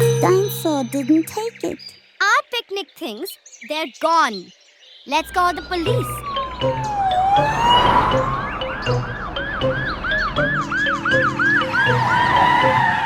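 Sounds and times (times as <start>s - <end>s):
police siren: 5.2s - 13.0s.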